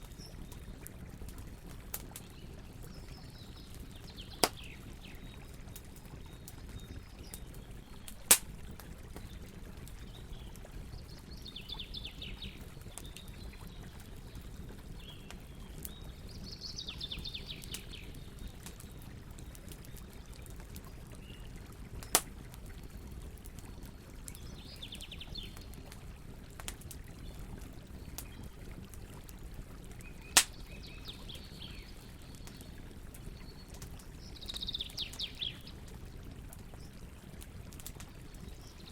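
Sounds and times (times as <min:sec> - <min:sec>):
burning wood popping: 0:00.0 - 0:04.8, 0:05.4 - 0:10.6, 0:17.7 - 0:27.1, 0:30.0 - 0:30.9
campfire crackling: 0:00.0 - 0:38.9.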